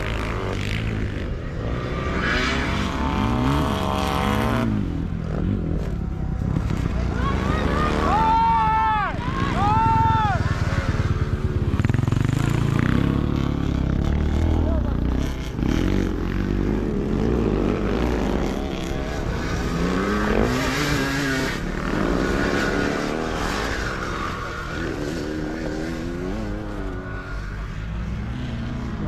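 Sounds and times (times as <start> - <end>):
motorcycle engines revving: 0.0 - 29.0.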